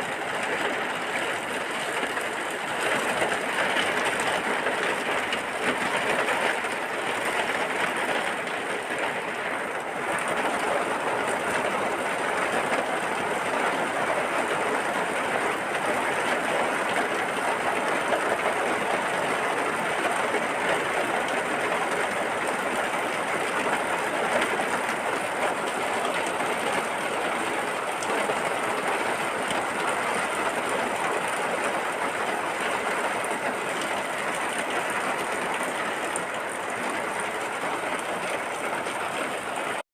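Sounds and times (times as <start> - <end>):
heavy rain: 0.0 - 39.8.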